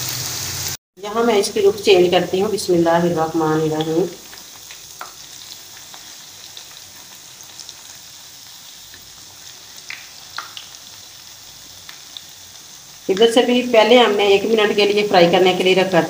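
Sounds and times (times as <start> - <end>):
fritters sizzling in hot oil: 0.0 - 16.0
spatula turning food in pan: 3.5 - 13.4.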